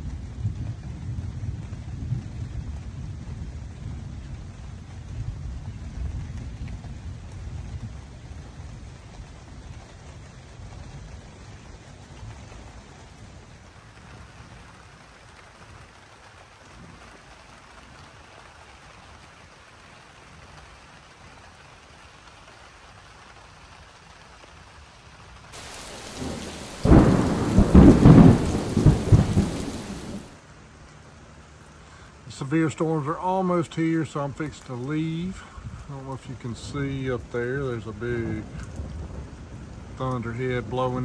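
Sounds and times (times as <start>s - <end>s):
thunderclap and rumble: 0.0s - 15.8s, 25.6s - 30.4s, 35.6s - 41.0s
steady rain: 0.0s - 41.0s.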